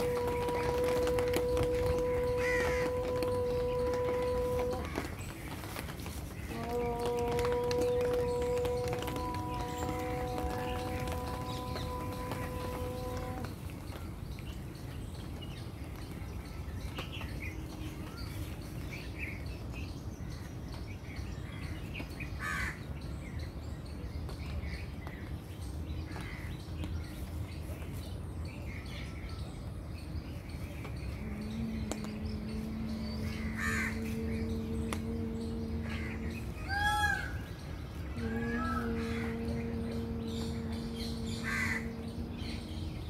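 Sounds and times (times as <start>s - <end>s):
background rumble: 0.0s - 21.2s, 29.2s - 43.0s
birds calling: 0.0s - 43.0s
steady droning tone: 31.1s - 43.0s.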